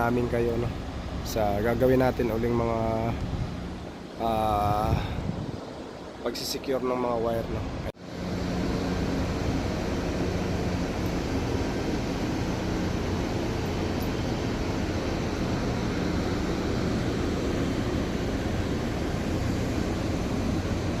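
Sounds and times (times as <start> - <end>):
generators droning: 0.0 - 21.0
low hum: 7.5 - 21.0.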